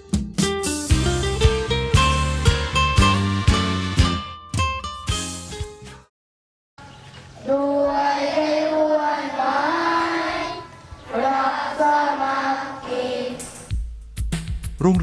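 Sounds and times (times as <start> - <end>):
children singing in unison: 7.4 - 13.7.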